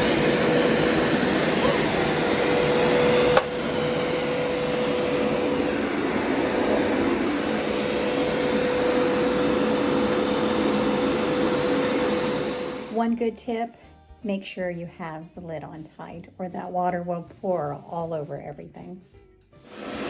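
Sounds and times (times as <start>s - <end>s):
carpet cleaner motor whirring: 0.0s - 13.0s, 19.6s - 20.0s.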